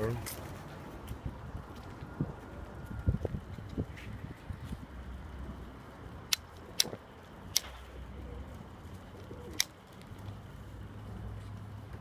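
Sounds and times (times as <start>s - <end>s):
sharp clicks: 6.3s - 7.8s
pigeons cooing softly: 7.9s - 9.8s.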